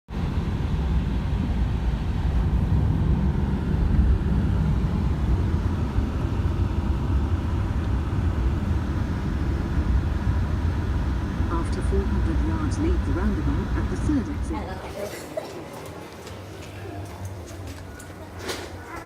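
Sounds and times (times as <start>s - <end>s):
car road noise rumble: 0.1s - 14.8s.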